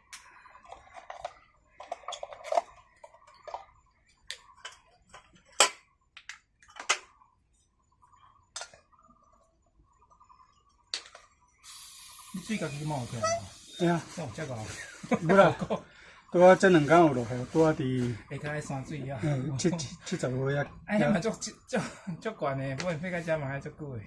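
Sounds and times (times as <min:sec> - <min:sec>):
clicks and knocks of objects: 0:00.0 - 0:07.2, 0:08.5 - 0:08.9, 0:10.9 - 0:11.3.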